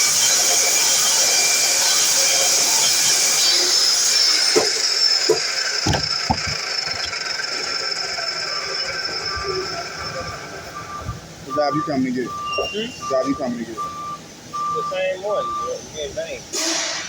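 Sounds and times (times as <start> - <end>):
miter saw whining: 0.0 - 11.0
short knocks: 5.3 - 7.1.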